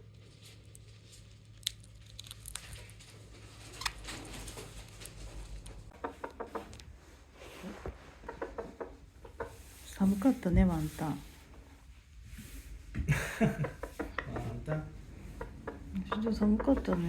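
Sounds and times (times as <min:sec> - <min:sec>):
parakeets clicking and scratching: 0:01.7 - 0:06.9, 0:08.2 - 0:10.1, 0:13.6 - 0:17.0.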